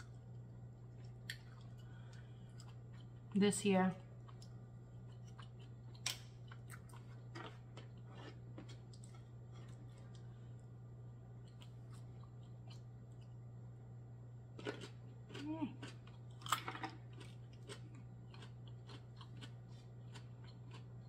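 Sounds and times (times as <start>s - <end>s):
chewing with wet mouth clicks: 0.9s - 3.3s, 4.2s - 10.3s, 11.4s - 13.4s, 14.6s - 21.0s.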